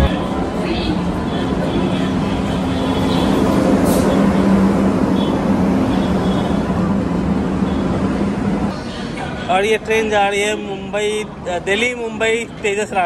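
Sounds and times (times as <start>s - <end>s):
station noise: 0.0s - 3.5s
train humming: 0.0s - 9.4s.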